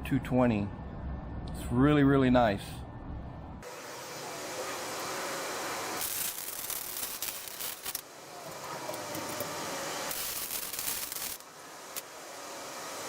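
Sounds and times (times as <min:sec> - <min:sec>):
welder arc crackling: 0:04.6 - 0:12.2.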